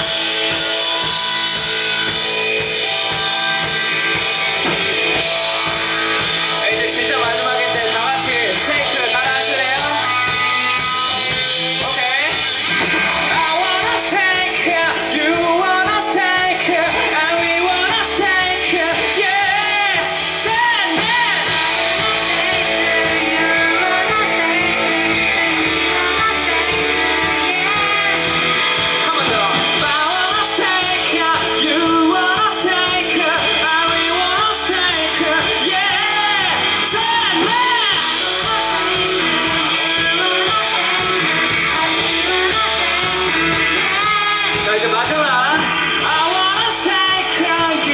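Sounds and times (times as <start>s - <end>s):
live rock band playing: 0.0s - 47.9s
loud sung vocal: 13.3s - 47.9s.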